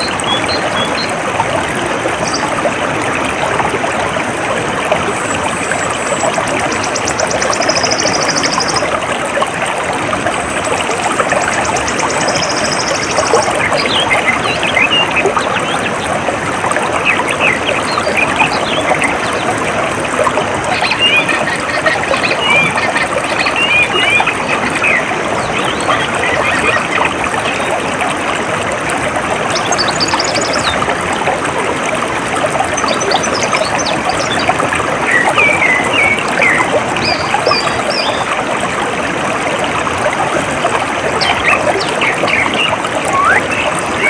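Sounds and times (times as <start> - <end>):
stream water trickling: 0.0 - 44.0
small birds chirping: 6.7 - 8.9.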